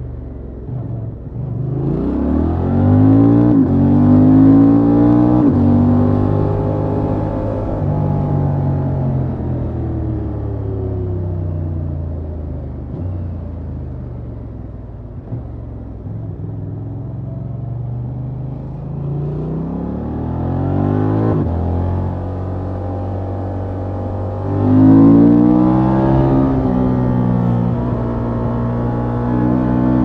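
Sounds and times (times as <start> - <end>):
motorcycle engine while riding: 0.0 - 30.0.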